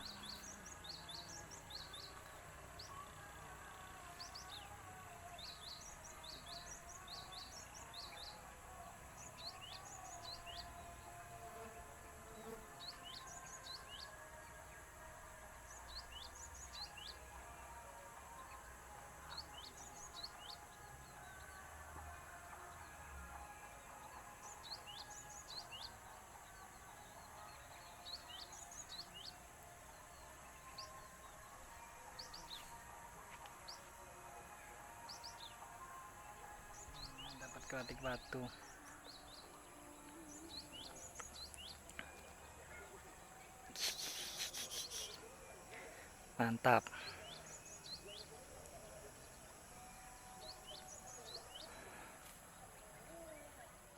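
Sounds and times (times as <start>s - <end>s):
small birds chirping: 0.0s - 3.2s, 4.0s - 34.2s, 34.8s - 53.9s
low outdoor hiss: 0.0s - 53.9s
small bird chirps: 43.7s - 45.3s.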